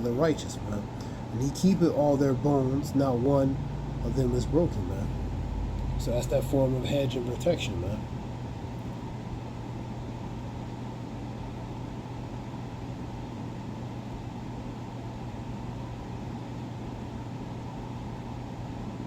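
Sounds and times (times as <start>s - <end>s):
low rushing noise: 0.0s - 9.2s
low machine hum: 0.0s - 19.0s.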